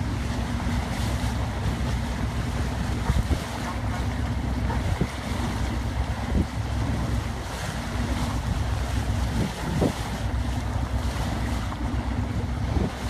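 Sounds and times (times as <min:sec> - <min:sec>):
boat engine running: 0:00.0 - 0:13.0
water wash: 0:00.0 - 0:13.0
wind buffeting microphone: 0:00.0 - 0:13.0.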